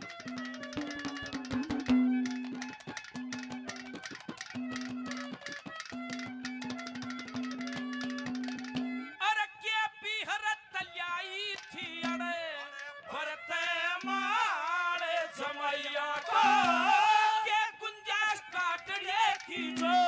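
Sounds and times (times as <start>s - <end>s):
man singing ornamented notes: 9.2s - 20.0s.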